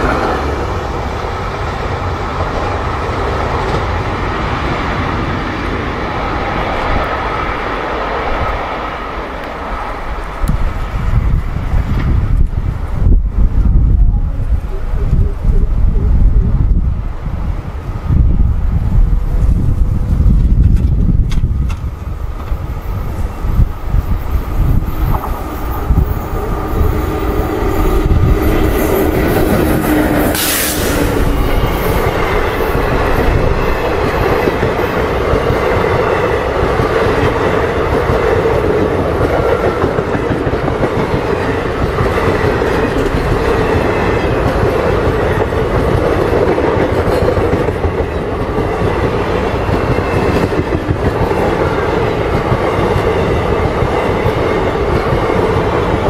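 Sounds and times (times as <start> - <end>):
train rushing past on rails: 0.0 - 56.0
brief sharp burst: 30.2 - 31.4.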